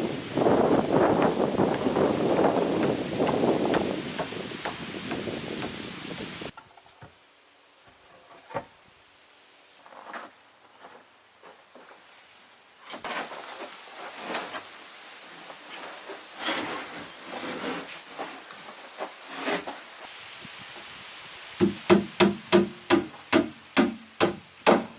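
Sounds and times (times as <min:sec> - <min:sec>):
handling knocks and rubbing: 0:00.6 - 0:05.8.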